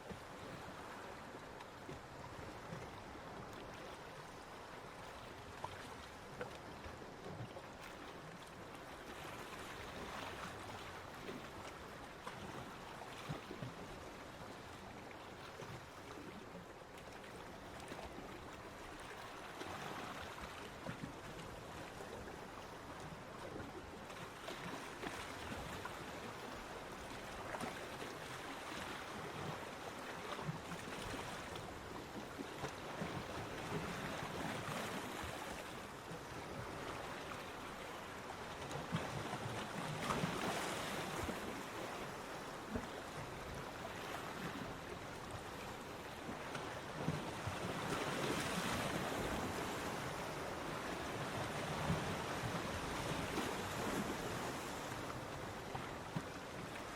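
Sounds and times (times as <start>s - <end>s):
ocean waves washing onto beach: 17.3s - 56.9s.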